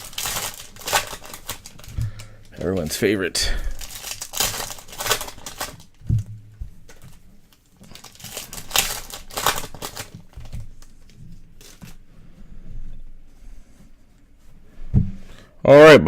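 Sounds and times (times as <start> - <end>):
plastic wrapping crinkling and tearing: 0.0 - 12.1.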